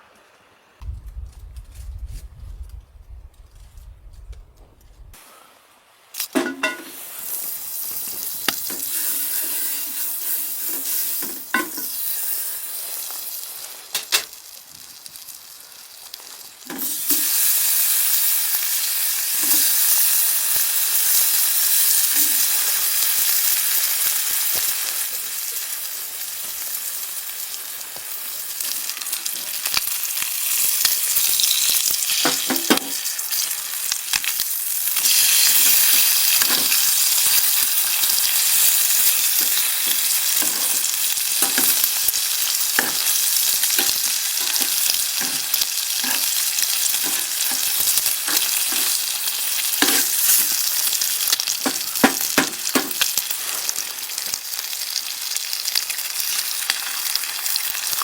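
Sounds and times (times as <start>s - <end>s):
food sizzling in a pan: 6.0s - 58.0s
stirring knocks and scrapes: 39.4s - 41.8s, 43.8s - 49.0s.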